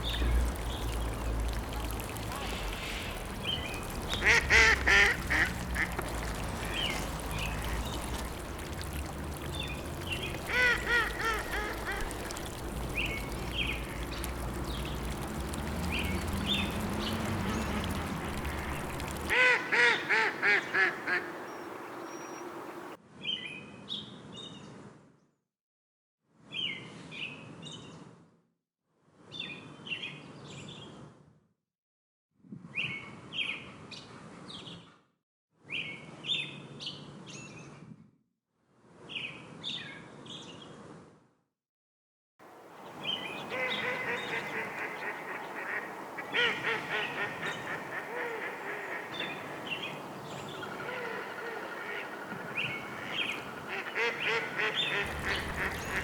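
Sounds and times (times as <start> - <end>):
ducks quacking: 0.0 - 22.9, 43.0 - 56.0
small birds chirping: 0.0 - 23.0, 42.7 - 56.0.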